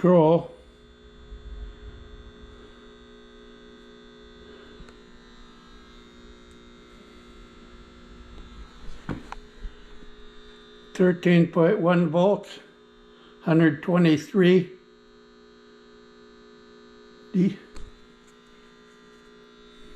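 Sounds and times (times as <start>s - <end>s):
inverter electrical hum: 0.0s - 19.9s.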